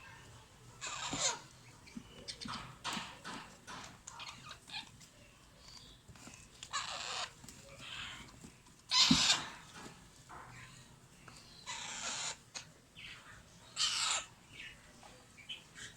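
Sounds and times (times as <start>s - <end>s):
parrot chicks begging calls: 0.1s - 5.0s, 6.7s - 8.3s, 8.9s - 9.9s, 11.4s - 14.8s.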